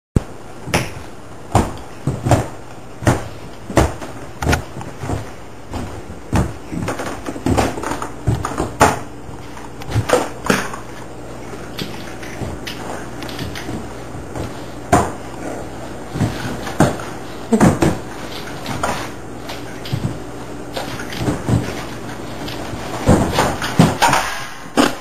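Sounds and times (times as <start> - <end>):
sharp knocks and thumps: 0.6 - 9.1, 20.8 - 25.0.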